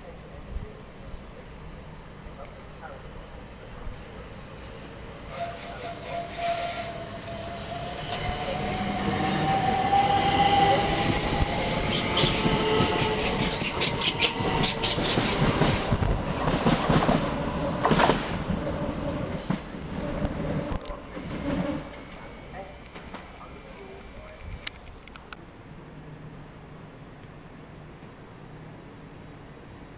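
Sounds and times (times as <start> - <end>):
electric train whine: 1.4 - 24.8
train wheels clattering over rail joints: 6.2 - 24.2.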